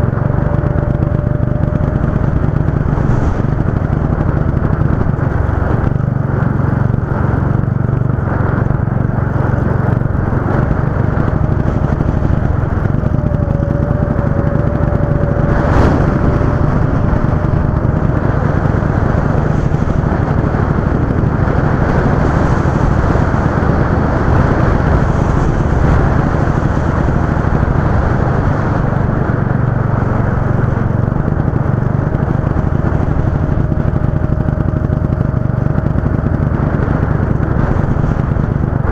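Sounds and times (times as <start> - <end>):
go-kart engine running: 0.0 - 38.9.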